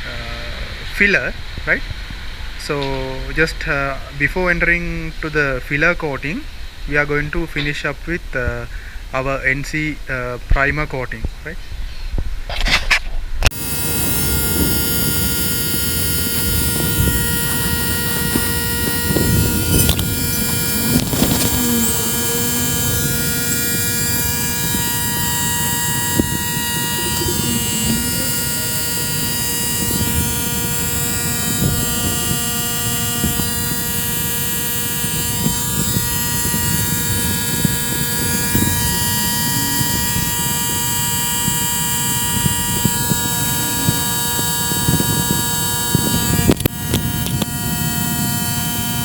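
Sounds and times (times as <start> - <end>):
air compressor motor hum: 13.5 - 49.0
spray gun hissing: 13.5 - 49.0.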